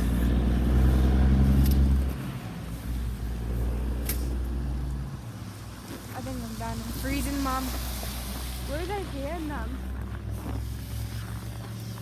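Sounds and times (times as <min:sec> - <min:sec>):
truck engine passing: 0:00.0 - 0:05.0.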